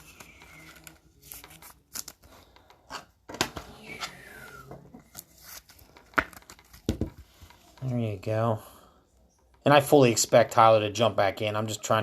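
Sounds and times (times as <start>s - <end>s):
cards clicking and rustling: 0.0s - 4.2s, 5.0s - 8.0s.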